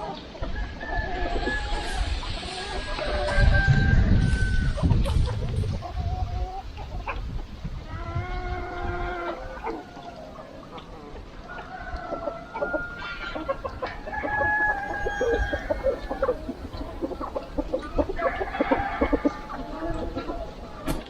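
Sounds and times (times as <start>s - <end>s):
chickens clucking: 0.0s - 21.0s
rooster crowing: 11.5s - 16.4s, 18.2s - 19.8s.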